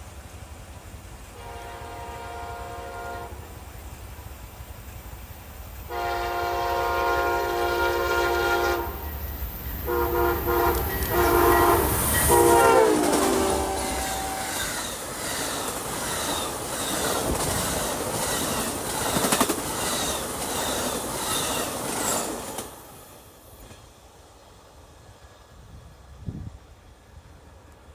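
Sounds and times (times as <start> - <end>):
train wheels clickety-clack: 0.0 - 25.6
locomotive air horn blasts: 1.4 - 3.5, 5.9 - 9.2, 9.8 - 14.7.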